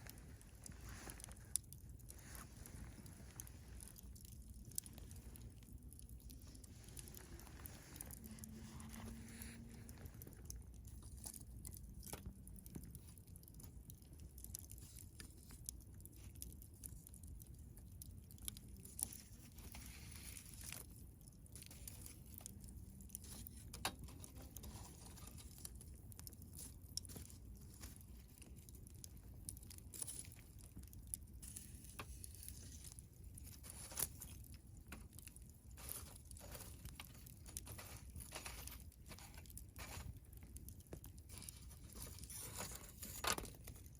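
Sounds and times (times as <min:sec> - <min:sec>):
low steady hiss: 0:00.0 - 0:12.0
campfire crackling: 0:00.0 - 0:43.9.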